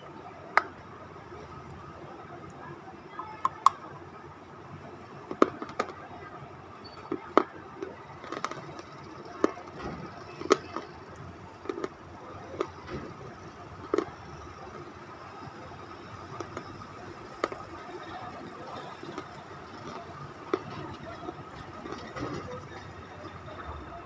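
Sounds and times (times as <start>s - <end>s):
crunchy chewing: 7.2s - 15.5s.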